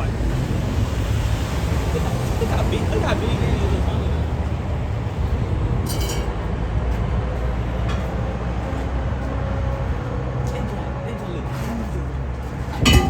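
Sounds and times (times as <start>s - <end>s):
car engine idling with deep rumble: 0.0s - 5.9s.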